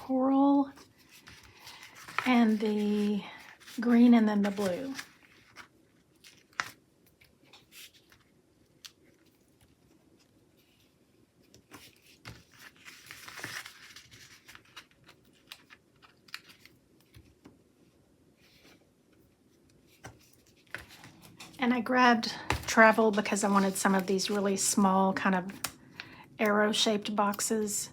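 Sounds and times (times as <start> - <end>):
sticker peeling paper rustle: 0.8 - 5.7, 22.3 - 24.7.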